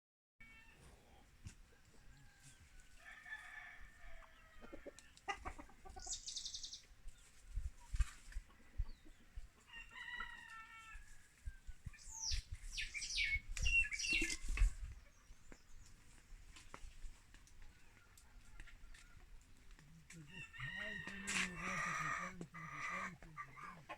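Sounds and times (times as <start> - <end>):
rooster crowing: 2.0 - 5.0, 20.3 - 22.4
chickens clucking: 4.1 - 11.0, 11.6 - 23.9
sharp high bird calls: 12.0 - 14.6.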